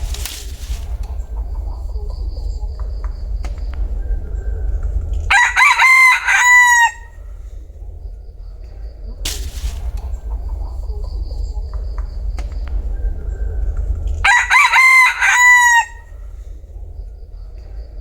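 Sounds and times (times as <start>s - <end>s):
steady low rumble: 0.0s - 18.0s
rooster crowing: 5.3s - 7.4s, 14.2s - 16.3s.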